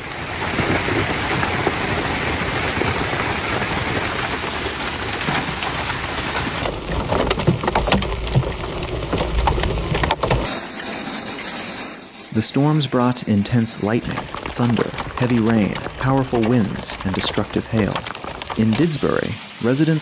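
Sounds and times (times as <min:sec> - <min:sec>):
heavy rain downpour: 0:00.0 - 0:10.5, 0:12.4 - 0:20.0
sharp scattered hits: 0:10.0 - 0:19.1.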